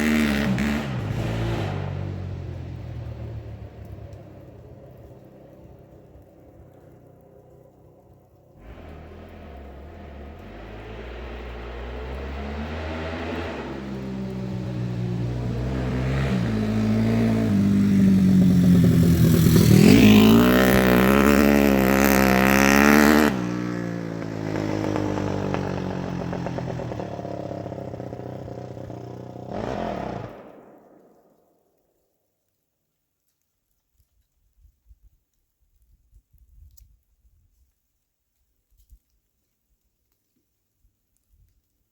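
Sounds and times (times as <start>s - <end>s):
dirt bike engine revving: 0.0s - 3.5s, 8.6s - 30.8s.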